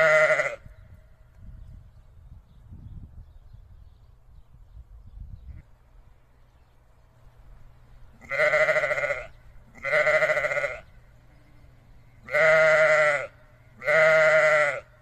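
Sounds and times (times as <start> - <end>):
sheep bleating: 0.0 - 0.6, 8.2 - 14.9.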